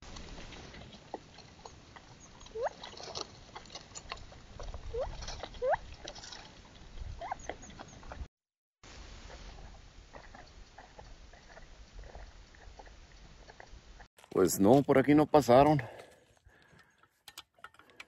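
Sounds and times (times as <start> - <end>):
animal squeaky calls: 2.2 - 2.8, 4.9 - 5.8, 7.2 - 8.0.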